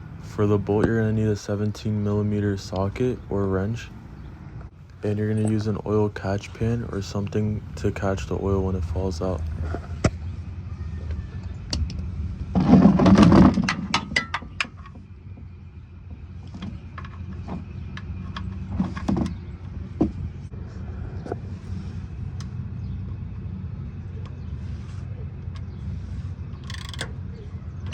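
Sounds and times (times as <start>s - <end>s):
steady low hum: 0.0s - 27.9s
loud scraping rustle: 12.0s - 14.2s, 18.4s - 22.2s, 24.4s - 26.8s.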